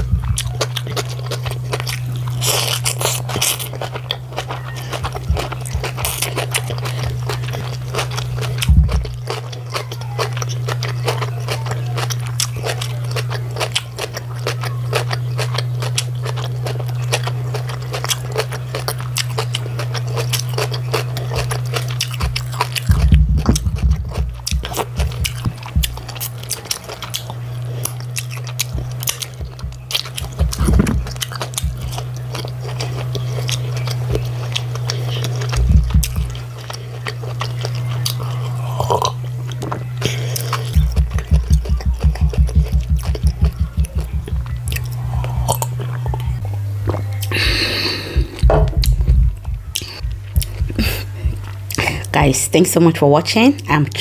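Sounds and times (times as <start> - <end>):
dull low thumps: 0.0 - 0.7, 5.0 - 6.5, 8.6 - 9.2, 22.2 - 26.2, 28.6 - 32.2, 35.5 - 36.5, 40.8 - 46.4, 48.0 - 52.5
woman chewing with wet mouth sounds: 0.0 - 52.2
steady low hum: 0.0 - 54.0.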